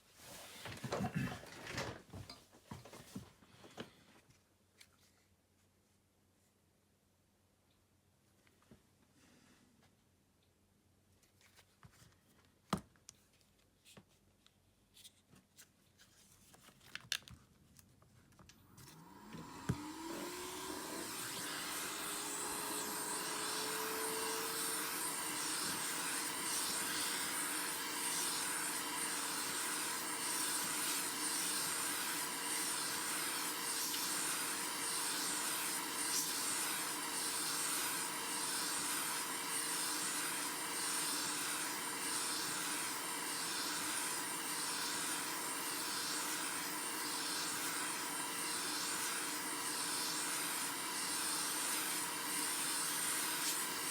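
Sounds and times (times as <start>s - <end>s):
hot air blower whining: 18.9s - 53.9s
rushing hiss of air: 19.9s - 53.9s.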